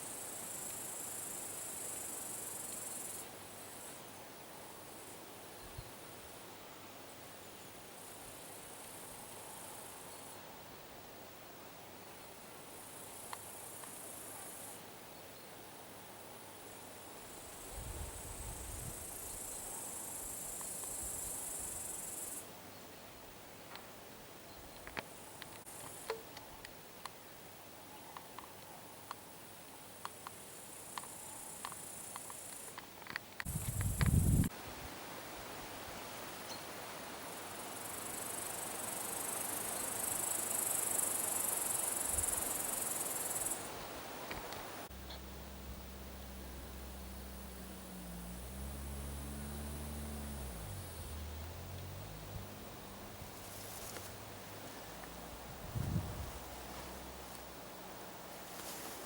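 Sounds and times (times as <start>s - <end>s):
cricket stridulating: 0.0s - 6.4s, 12.2s - 14.8s, 15.4s - 22.5s, 24.4s - 34.5s, 36.4s - 59.0s
insect buzzing: 44.5s - 57.4s.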